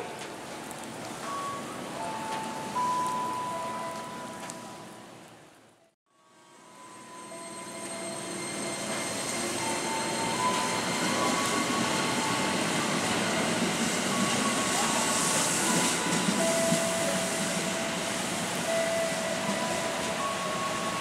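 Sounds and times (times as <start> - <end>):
electric train running: 6.2 - 21.0
heavy rain hissing: 11.1 - 21.0.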